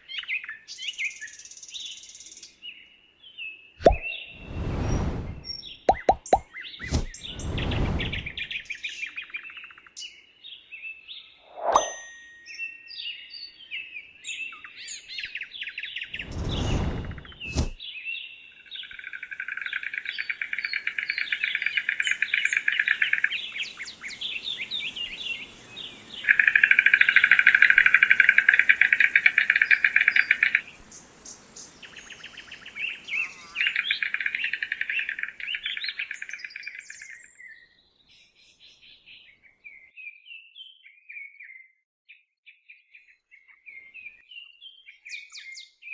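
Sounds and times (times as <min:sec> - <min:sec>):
short falling chirps: 0:03.8 - 0:08.4
birds calling with rattling pulses: 0:18.7 - 0:37.3
steady high hiss: 0:18.8 - 0:37.0.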